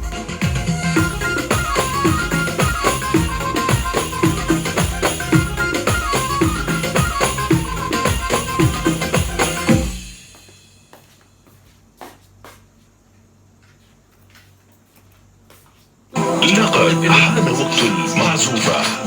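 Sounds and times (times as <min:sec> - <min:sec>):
arranger keyboard melody: 0:00.0 - 0:10.2, 0:16.2 - 0:19.0
drum rhythm with tambourine: 0:00.0 - 0:12.8.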